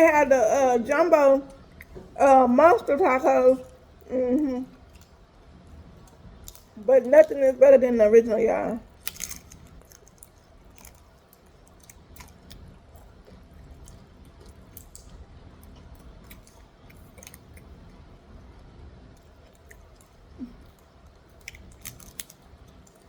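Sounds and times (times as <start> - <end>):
person chewing crunchy food: 8.9 - 18.2, 19.2 - 23.0.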